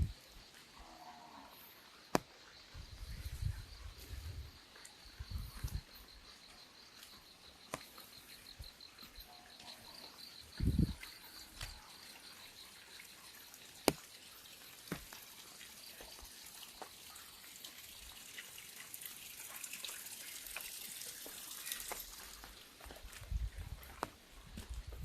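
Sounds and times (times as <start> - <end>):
insect chirping: 0.0 - 25.0
rain dripping on an umbrella: 11.4 - 23.2.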